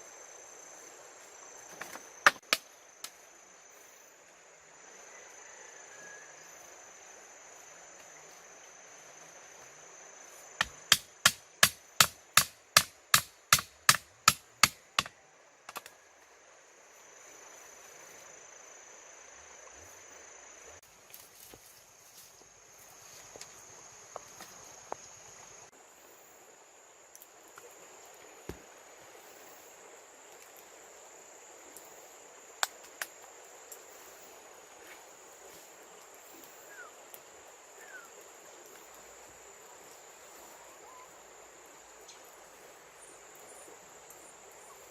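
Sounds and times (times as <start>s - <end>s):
insects buzzing: 0.0s - 44.9s
sharp chopping strikes: 10.6s - 15.1s.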